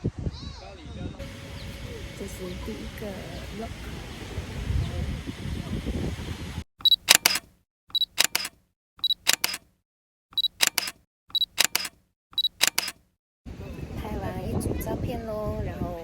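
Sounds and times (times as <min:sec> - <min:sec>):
camera beep: 0:06.8 - 0:09.6, 0:10.4 - 0:13.0
camera shutter double click: 0:06.9 - 0:09.6, 0:10.4 - 0:13.0.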